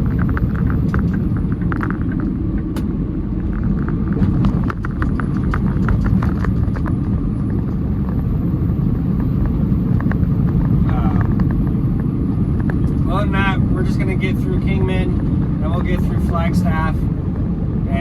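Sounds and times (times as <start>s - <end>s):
diesel truck engine rumble: 0.0s - 18.0s
road noise: 0.0s - 18.0s.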